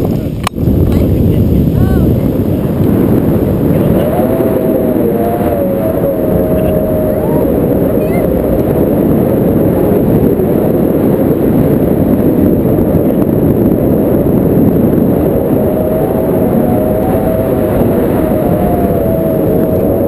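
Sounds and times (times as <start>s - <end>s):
motorboat engine rumble: 0.0s - 20.0s
wind on microphone: 0.0s - 20.0s
faint wavering tones: 2.9s - 12.6s, 14.7s - 20.0s.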